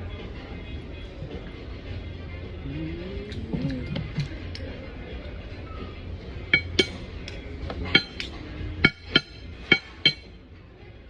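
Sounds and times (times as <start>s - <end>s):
cutlery clinking against dishes: 6.5s - 7.1s, 7.8s - 10.3s.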